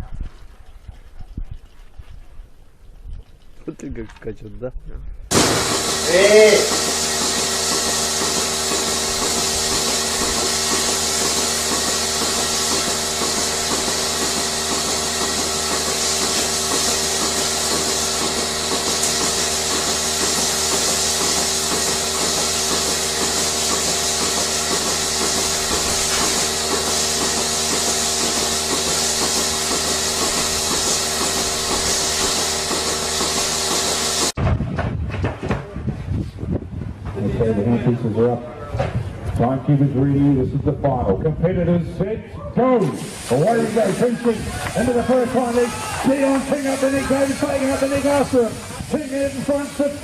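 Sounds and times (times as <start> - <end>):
high hiss: 5.3 - 34.4, 42.8 - 50.0
machine humming and pulsing: 5.3 - 34.4.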